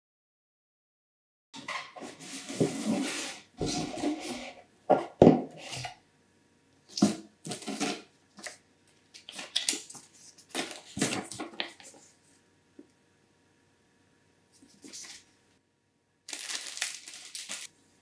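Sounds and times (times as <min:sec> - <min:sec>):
packaging rustling and crinkling: 0:07.5 - 0:12.1, 0:16.3 - 0:17.7.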